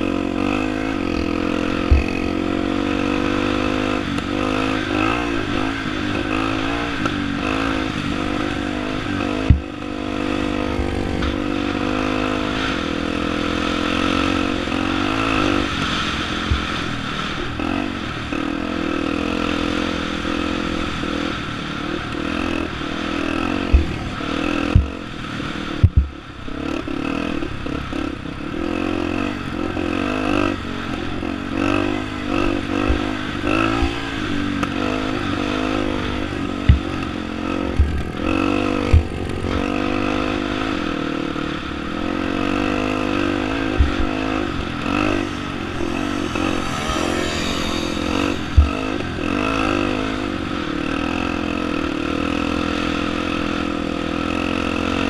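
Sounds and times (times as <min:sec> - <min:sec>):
motorcycle engine running hard: 0:00.0 - 0:55.0
wind rushing over microphone: 0:42.6 - 0:51.0.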